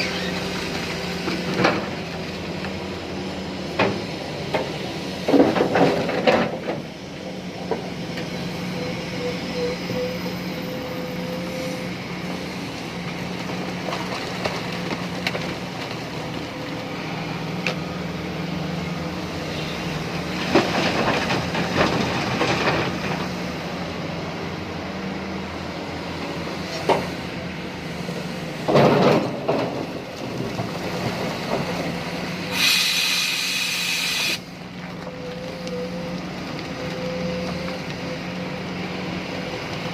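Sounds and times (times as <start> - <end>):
excavator diesel engine hum: 0.0 - 39.9
high hiss: 32.5 - 34.4.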